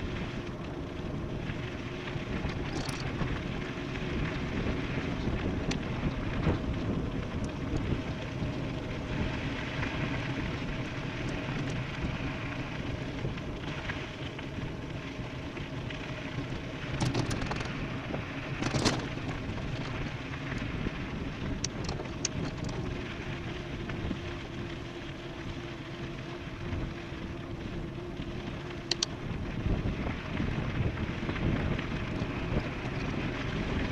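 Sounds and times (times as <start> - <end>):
bicycle tyre noise: 0.0 - 33.9
wind rushing over microphone: 0.0 - 33.9
sharp clicks and rattles: 2.4 - 3.5, 16.8 - 20.7, 21.5 - 24.0, 28.8 - 29.2.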